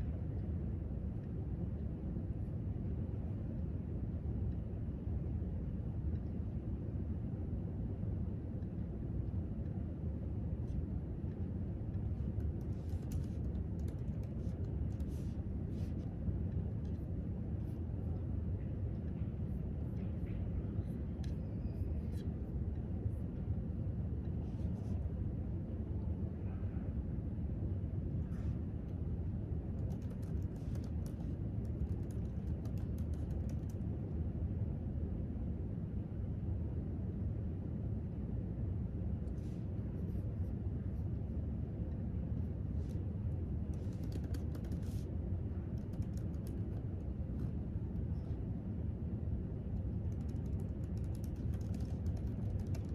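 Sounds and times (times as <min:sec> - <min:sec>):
low room tone rumble: 0:00.0 - 0:52.9
typing on a keyboard: 0:12.4 - 0:15.0, 0:29.8 - 0:33.8, 0:43.7 - 0:45.1, 0:45.8 - 0:46.8, 0:50.0 - 0:52.9.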